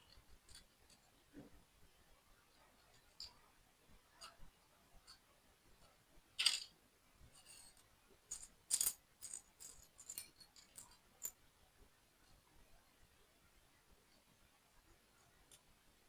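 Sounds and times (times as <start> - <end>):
plastic toy pieces rattling: 6.4 - 6.7, 8.3 - 11.3.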